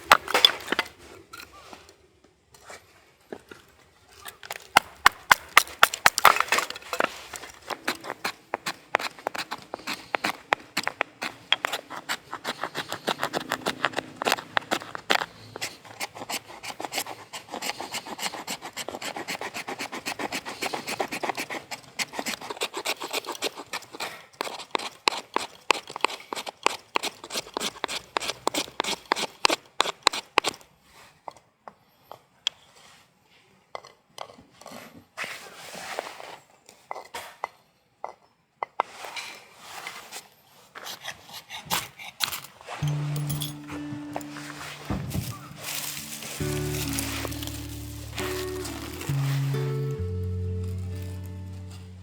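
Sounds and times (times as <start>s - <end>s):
blade scraping wood: 4.2s - 30.6s, 39.7s - 52.0s.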